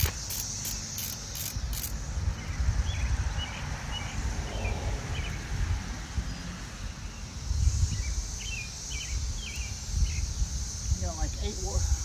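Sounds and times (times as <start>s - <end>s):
ratchet wrench clicking: 0.0s - 2.0s
steady high hiss: 0.0s - 2.1s
low rumble of outdoor air: 0.0s - 12.0s.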